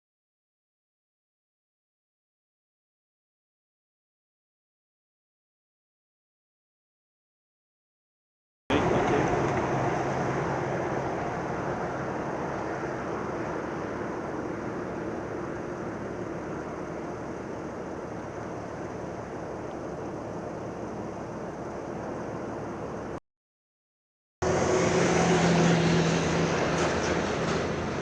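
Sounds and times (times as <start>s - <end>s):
engines rumbling: 8.7s - 23.2s, 24.4s - 28.0s
loud engine drone: 8.7s - 23.2s, 24.4s - 28.0s.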